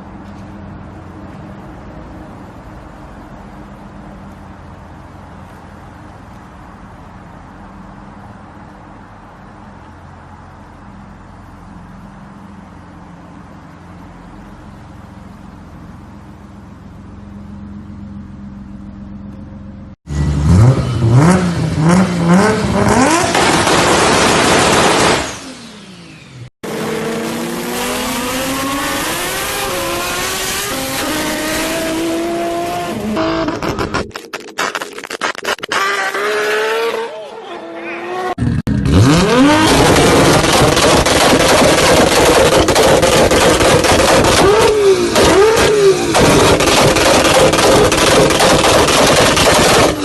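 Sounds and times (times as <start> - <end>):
car engine running: 0.0 - 36.2, 38.3 - 50.0
car engine revving: 20.1 - 34.2, 35.4 - 50.0
exhaust pops: 33.1 - 36.3, 38.7 - 50.0.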